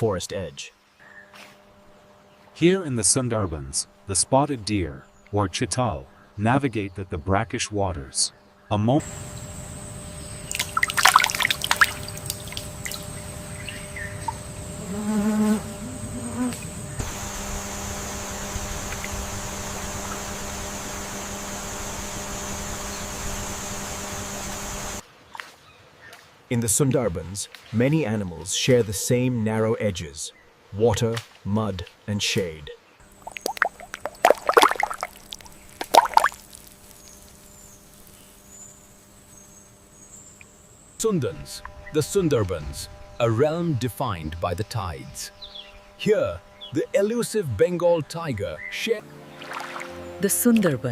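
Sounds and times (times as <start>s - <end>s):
insect buzzing: 9.0s - 25.0s, 33.0s - 47.1s
patter of splashes or clicks: 10.5s - 13.1s, 33.2s - 37.1s
steady hiss: 33.0s - 45.3s.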